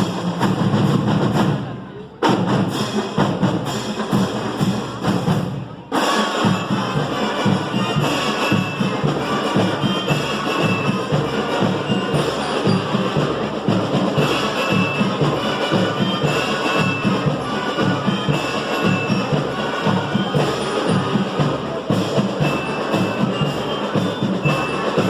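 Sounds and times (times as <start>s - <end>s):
marching drums beat: 0.0s - 25.0s
high melody notes: 4.1s - 25.0s.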